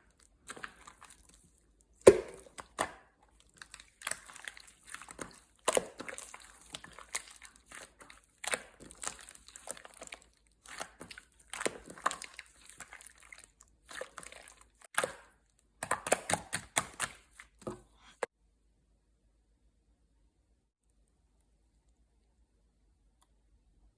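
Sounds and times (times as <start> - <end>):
slime popping and crackling: 0.1 - 17.3.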